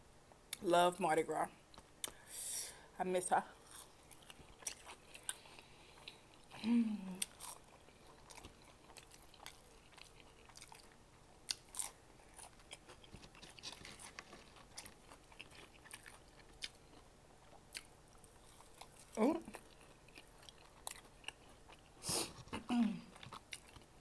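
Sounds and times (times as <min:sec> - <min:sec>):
chewing with wet mouth clicks: 0:03.6 - 0:06.6, 0:07.2 - 0:22.5, 0:23.1 - 0:24.0
person humming low: 0:06.6 - 0:07.2.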